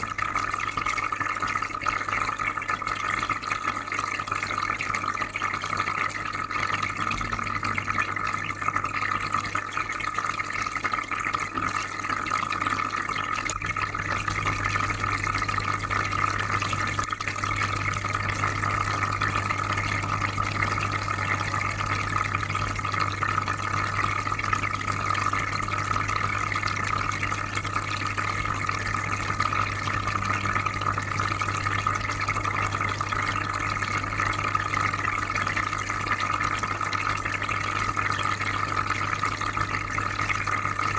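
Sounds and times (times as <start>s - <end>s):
aquarium filter bubbling water: 0.0s - 40.9s
low hum: 13.5s - 35.8s.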